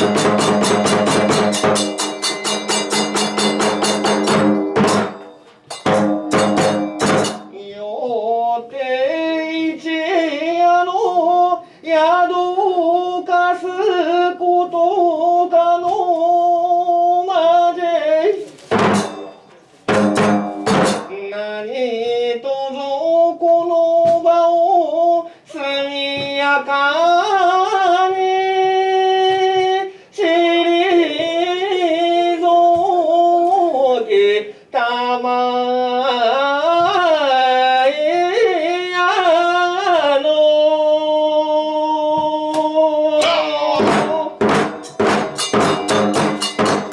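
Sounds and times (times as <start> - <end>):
drum or wood strikes: 0.0 - 7.6, 18.7 - 21.2, 42.6 - 46.9.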